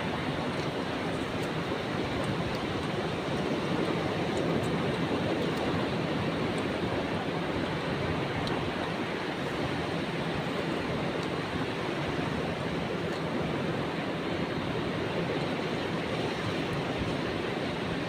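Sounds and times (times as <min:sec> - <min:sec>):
wind: 0:00.0 - 0:18.0.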